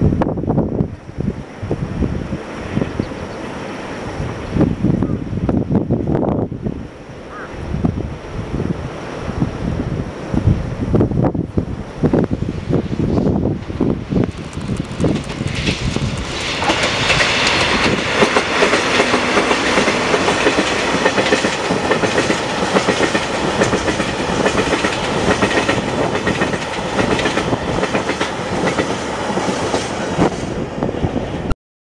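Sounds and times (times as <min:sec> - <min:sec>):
diesel locomotive engines running: 0:11.9 - 0:31.3
wheels clickety-clacking over rail joints: 0:13.6 - 0:30.5.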